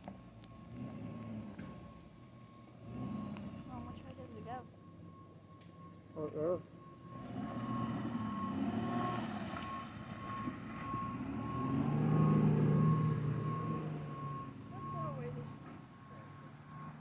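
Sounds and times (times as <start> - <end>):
truck engine running: 0.0 - 17.0
backup alarm beeping: 3.7 - 17.0.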